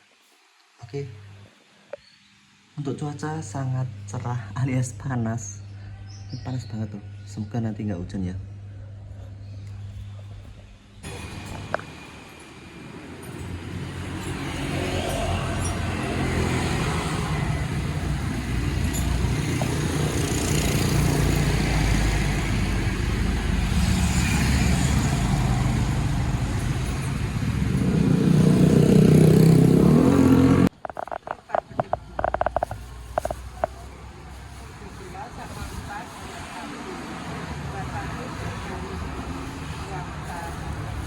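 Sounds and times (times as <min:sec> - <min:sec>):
wind and road noise: 0:10.0 - 0:41.0
motorcycle engine: 0:11.0 - 0:34.1.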